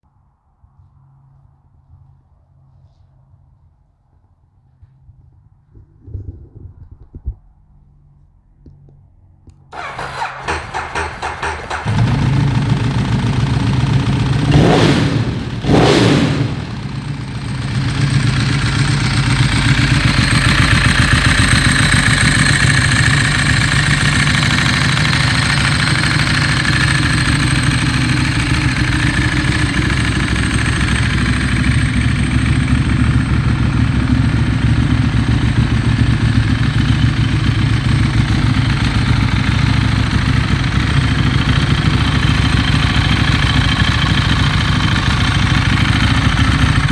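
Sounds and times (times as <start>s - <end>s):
motorcycle engine revving and idling: 9.7s - 46.9s.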